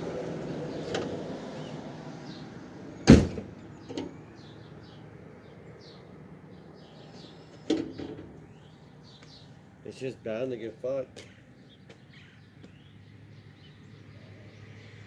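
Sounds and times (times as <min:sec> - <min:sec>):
loud heavy thud: 0:03.1 - 0:03.6.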